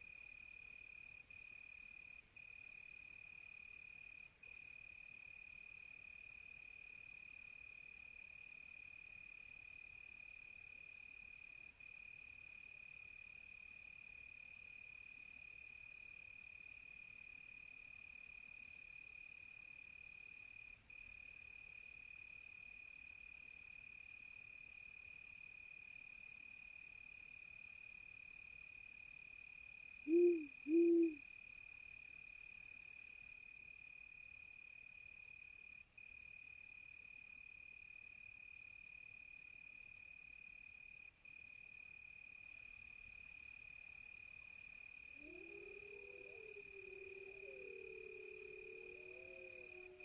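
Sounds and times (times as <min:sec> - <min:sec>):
crickets chirping: 0:30.1 - 0:31.2, 0:44.5 - 0:50.0
owl hooting: 0:30.1 - 0:31.2, 0:45.1 - 0:50.0.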